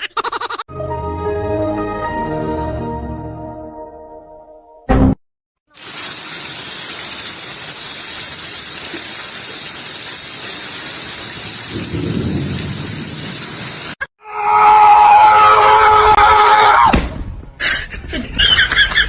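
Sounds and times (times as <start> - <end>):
falling water hissing: 5.7 - 14.0.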